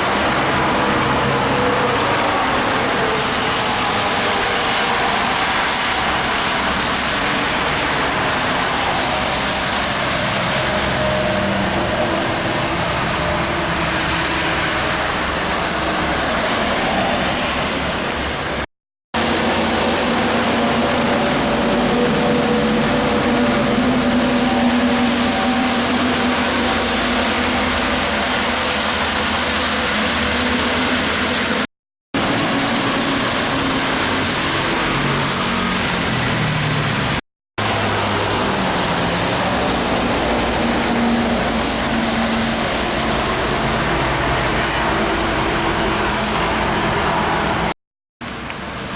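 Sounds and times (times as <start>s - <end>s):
diesel engines droning: 0.0s - 48.9s
tyres hissing on wet road: 0.0s - 48.9s.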